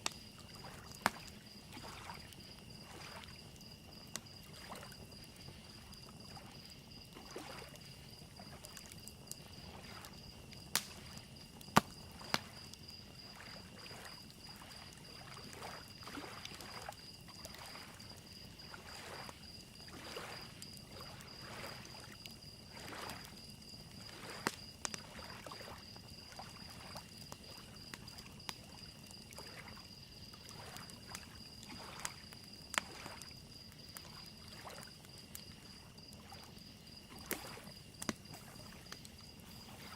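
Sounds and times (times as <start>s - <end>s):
wood fire crackling and popping: 0.0s - 29.7s, 30.5s - 39.9s
crickets trilling: 0.0s - 39.9s
lake waves lapping: 0.5s - 3.5s, 4.5s - 8.8s, 9.4s - 10.2s, 11.8s - 23.4s, 24.0s - 29.8s, 30.4s - 32.2s, 32.8s - 33.2s, 34.0s - 34.8s, 37.1s - 39.9s.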